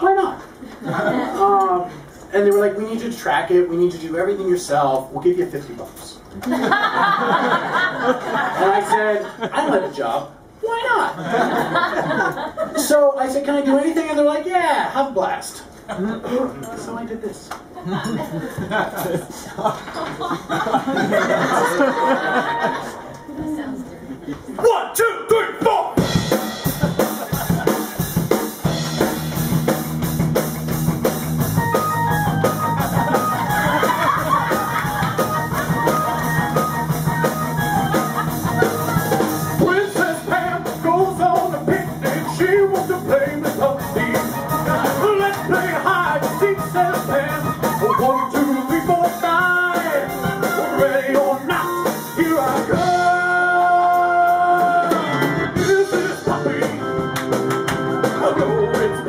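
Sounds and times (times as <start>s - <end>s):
live band playing upbeat song: 25.9s - 59.0s
man singing: 39.6s - 57.1s, 58.0s - 59.0s.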